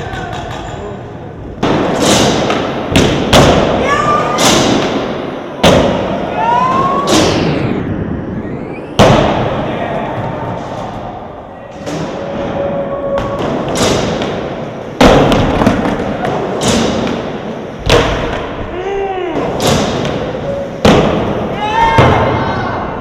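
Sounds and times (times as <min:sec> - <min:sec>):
skateboard landing impacts: 0:01.6 - 0:03.8, 0:13.3 - 0:18.5.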